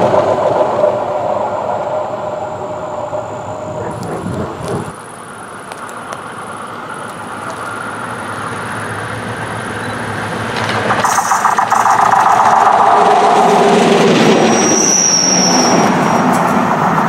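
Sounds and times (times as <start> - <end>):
diesel railcar running: 0.0 - 17.0
wheels clicking over rails: 3.7 - 17.0.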